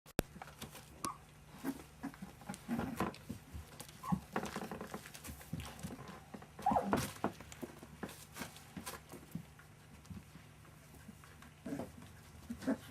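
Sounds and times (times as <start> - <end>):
puppies scuffling: 0.2 - 12.9
puppy squeaks: 1.0 - 1.8, 4.0 - 4.3, 6.6 - 7.0.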